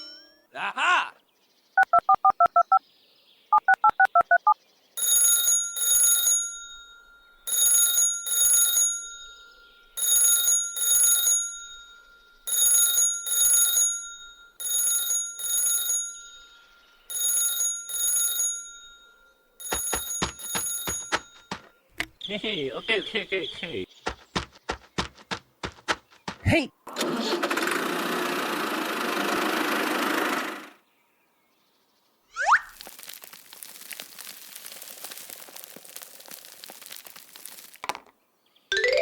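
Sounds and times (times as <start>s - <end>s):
keypad beeps: 1.8s - 2.8s, 3.5s - 4.6s
telephone ringing: 3.6s - 21.7s.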